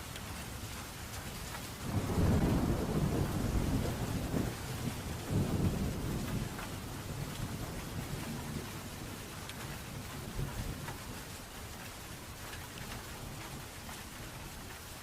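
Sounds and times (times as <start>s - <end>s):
steady rain: 0.0s - 15.0s
thunder rumbling: 1.8s - 9.2s.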